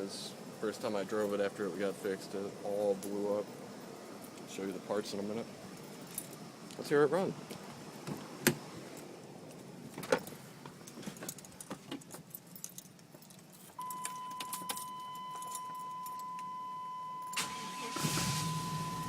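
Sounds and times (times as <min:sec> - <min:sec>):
keys jangling: 0:05.7 - 0:06.5, 0:09.5 - 0:16.5
vehicle warning tone: 0:13.8 - 0:19.0.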